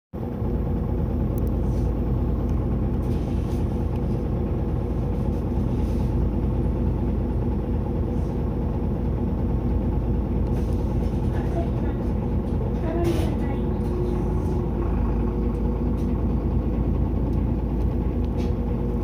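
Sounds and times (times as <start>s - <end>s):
bus diesel engine running: 0.2s - 19.0s
faint clicks and rattles: 10.4s - 18.9s.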